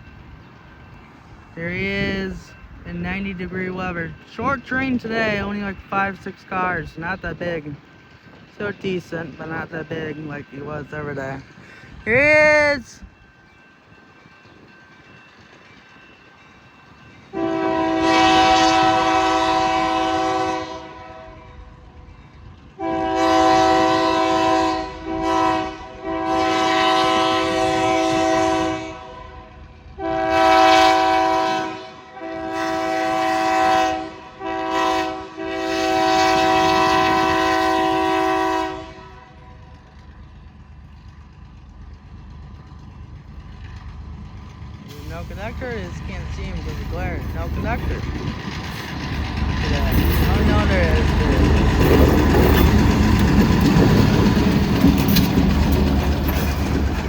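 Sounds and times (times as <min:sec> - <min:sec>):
passing train rumble: 0:00.0 - 0:57.0
locomotive air horn blasts: 0:17.3 - 0:21.5, 0:22.8 - 0:39.6.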